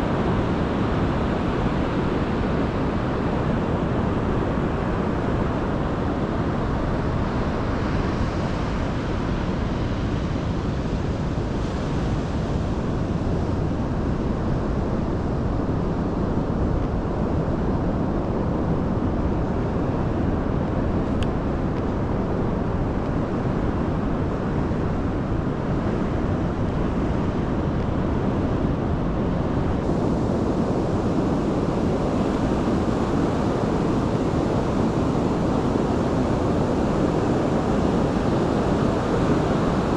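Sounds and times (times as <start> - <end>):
ocean surf roar: 0.0 - 39.9
wind: 0.0 - 39.9.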